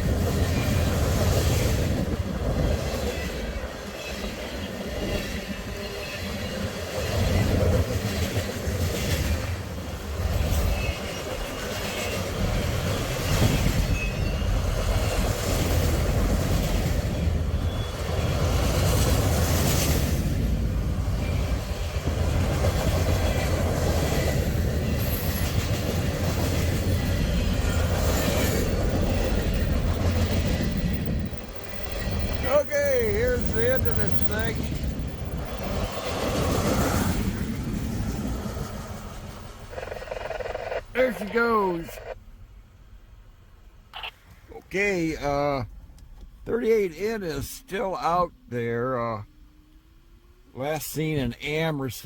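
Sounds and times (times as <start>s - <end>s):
train wheels rumbling on rail: 0.0s - 40.8s.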